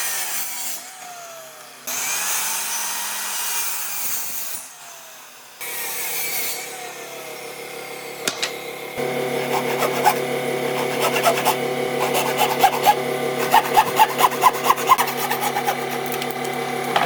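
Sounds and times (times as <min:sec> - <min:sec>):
power saw cutting wood: 0:00.0 - 0:17.0
motor humming: 0:08.4 - 0:17.0.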